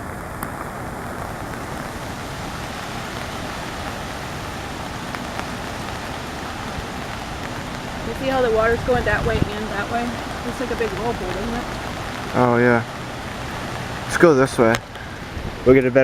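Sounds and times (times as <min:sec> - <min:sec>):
hiss of floodwater and rain: 0:00.0 - 0:16.0.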